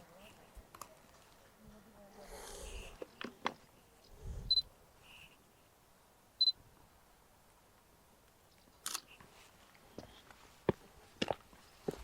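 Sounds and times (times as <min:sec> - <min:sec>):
camera focus beeps: 0:08.8 - 0:09.1
camera shutter click: 0:08.8 - 0:09.1.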